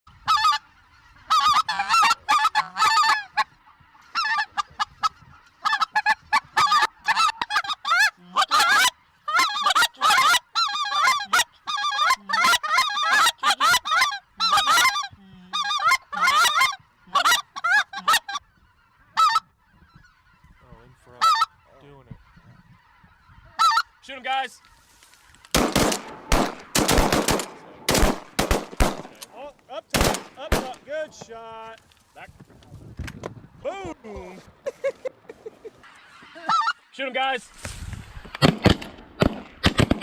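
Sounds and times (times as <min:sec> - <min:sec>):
goose honking: 0:00.1 - 0:27.4, 0:35.8 - 0:37.4.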